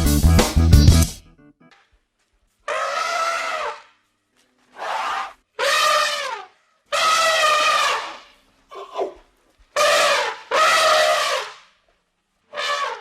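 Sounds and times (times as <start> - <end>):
elephant trumpeting: 2.6 - 4.1, 4.7 - 11.8, 12.5 - 13.0.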